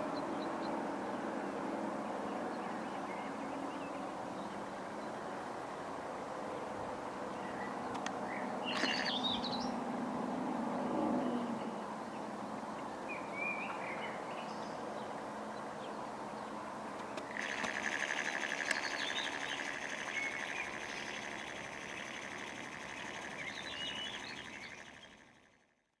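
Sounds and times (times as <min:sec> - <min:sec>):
small birds chirping: 0:07.4 - 0:09.8, 0:16.3 - 0:25.7
high-pitched buzzing tone: 0:08.8 - 0:09.2, 0:17.2 - 0:25.7.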